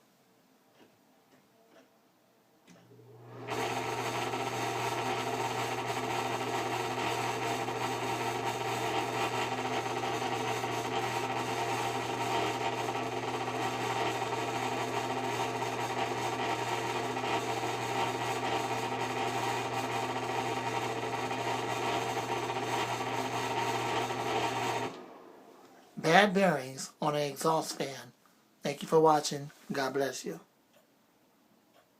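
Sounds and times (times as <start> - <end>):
exhaust fan motor hum: 2.9 - 25.7.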